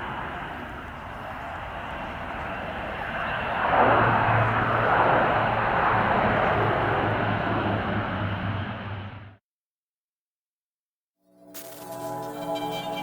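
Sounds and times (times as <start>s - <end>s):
turboprop aircraft flying by: 0.0s - 9.4s.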